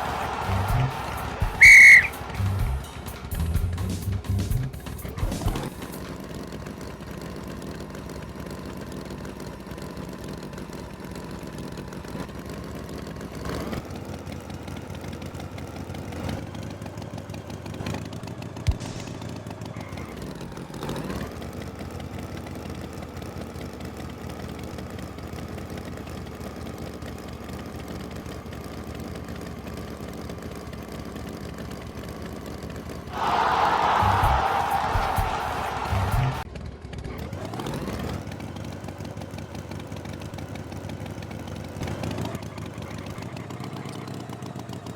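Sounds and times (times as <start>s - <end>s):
engine idling: 0.0s - 44.9s.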